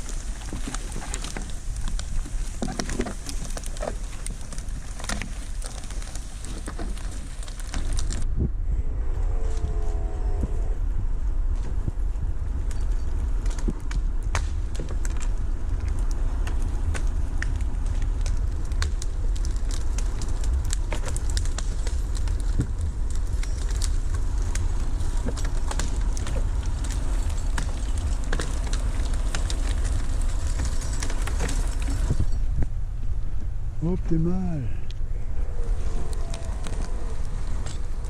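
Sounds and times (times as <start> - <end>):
sharp cracks and snaps: 0.0 - 8.3, 12.6 - 32.7, 35.6 - 38.0
deep engine rumble: 0.0 - 38.0.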